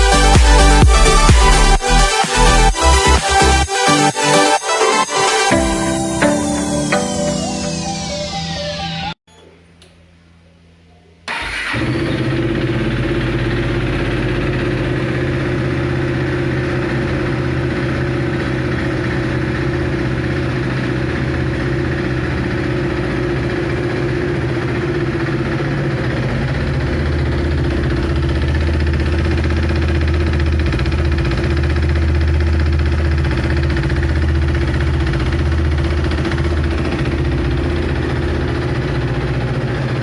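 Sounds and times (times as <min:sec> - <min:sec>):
motorcycle engine starting and idling: 0:11.2 - 0:40.0.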